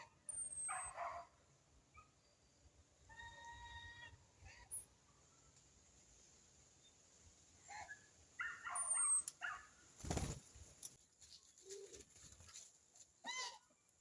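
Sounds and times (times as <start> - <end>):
wings flapping: 10.0 - 10.8, 11.6 - 12.7.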